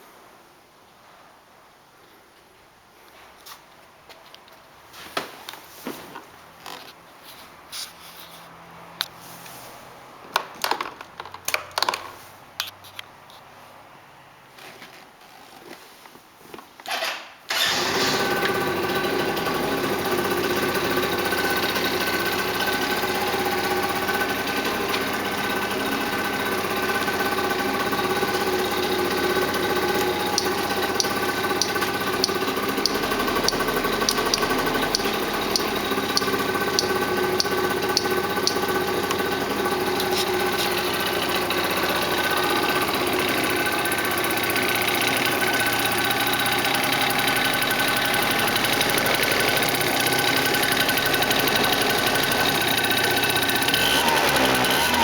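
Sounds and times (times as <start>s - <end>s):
scooter engine starting and idling: 16.8s - 55.0s.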